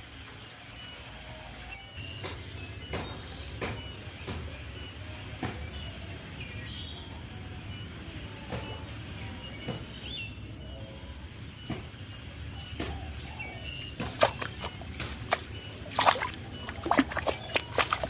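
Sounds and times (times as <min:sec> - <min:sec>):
high insect drone: 0:00.0 - 0:18.0
bird chirps: 0:00.7 - 0:18.0
water splashing and sloshing: 0:13.8 - 0:18.0.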